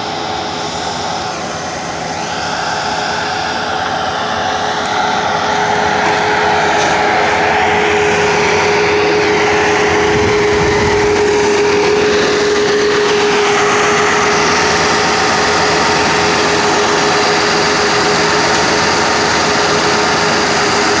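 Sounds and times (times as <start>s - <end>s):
engine whine: 0.0s - 21.0s
loader engine running: 0.0s - 21.0s.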